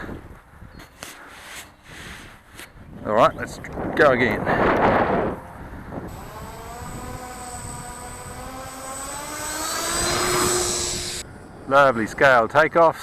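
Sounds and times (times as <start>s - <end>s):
electric motor and propeller whine: 5.1s - 11.7s.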